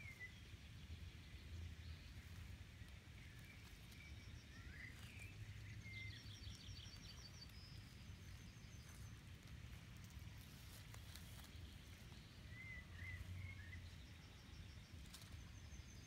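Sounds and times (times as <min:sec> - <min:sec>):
distant bird chirps: 0:03.2 - 0:16.0.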